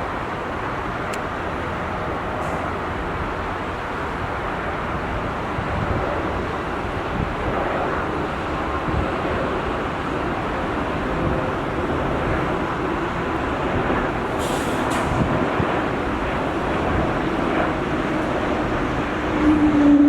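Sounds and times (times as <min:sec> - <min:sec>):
jet engines rumbling: 0:00.0 - 0:20.0
short hisses: 0:14.4 - 0:15.2.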